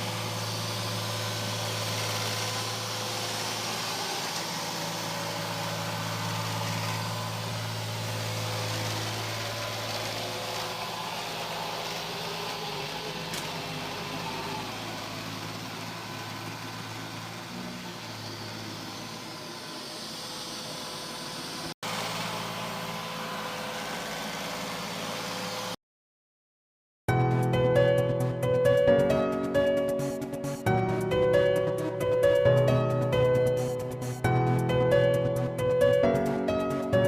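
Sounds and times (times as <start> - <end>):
robot vacuum running: 0.0 - 25.8.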